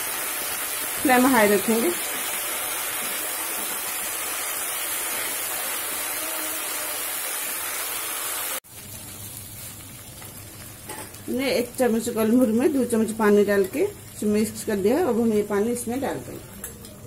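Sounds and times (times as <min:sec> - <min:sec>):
food sizzling in hot oil: 0:00.0 - 0:16.9.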